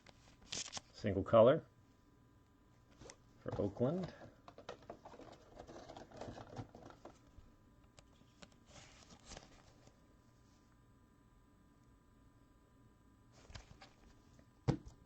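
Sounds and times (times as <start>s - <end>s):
trading cards rustling and clicking: 2.9s - 7.3s.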